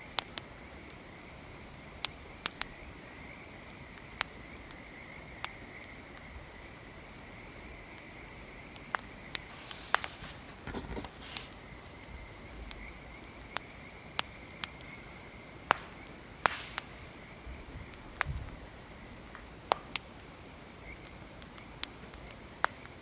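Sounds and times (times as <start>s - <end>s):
wood fire crackling: 9.3s - 11.6s, 14.2s - 18.0s
rustling scrapes: 9.4s - 11.6s.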